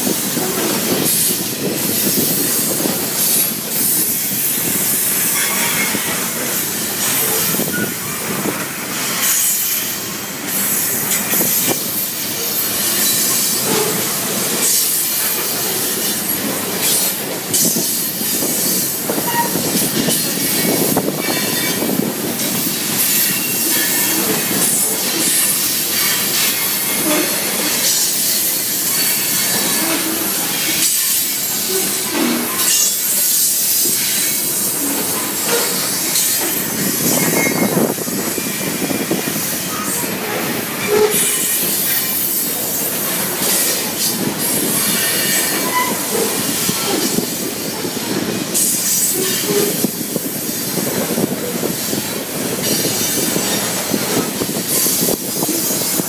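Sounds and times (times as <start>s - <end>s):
train wheel squeal: 0.0s - 56.0s
train wheels clattering on rails: 0.0s - 56.0s.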